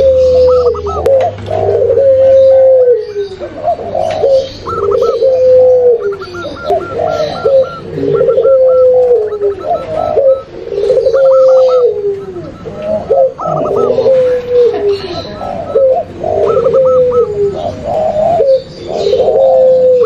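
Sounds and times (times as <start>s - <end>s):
doves cooing: 0.0s - 20.0s
quick high repeated dove notes: 4.6s - 14.5s.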